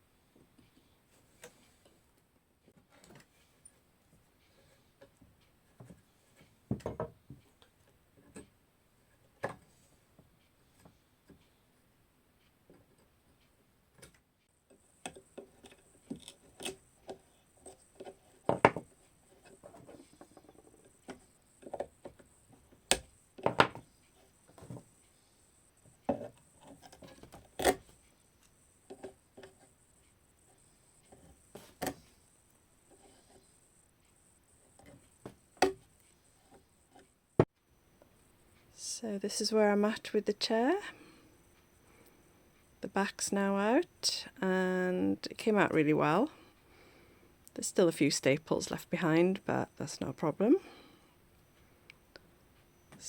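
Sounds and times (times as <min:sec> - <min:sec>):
tools scraping against wood: 0:14.0 - 0:25.3, 0:25.9 - 0:32.2, 0:32.8 - 0:33.6.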